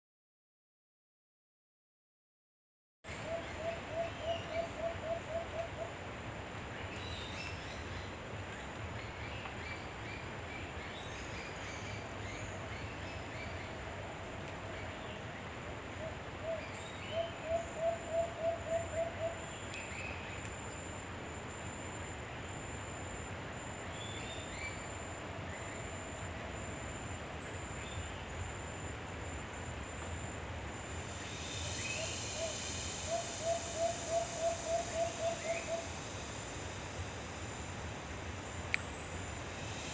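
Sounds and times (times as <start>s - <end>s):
insect hum: 3.1s - 39.9s
high insect buzz: 30.8s - 39.9s.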